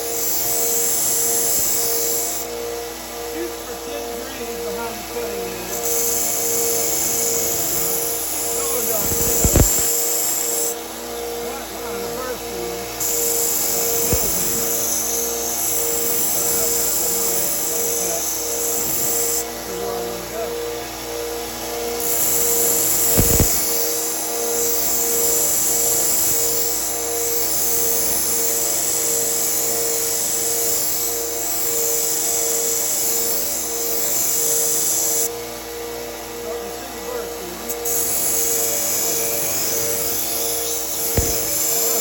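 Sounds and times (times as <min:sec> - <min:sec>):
belt sander humming: 0:00.0 - 0:42.0
knife blade grinding on belt: 0:05.8 - 0:10.7, 0:13.0 - 0:19.4, 0:22.1 - 0:24.0, 0:37.8 - 0:42.0
low thump: 0:41.2 - 0:41.6.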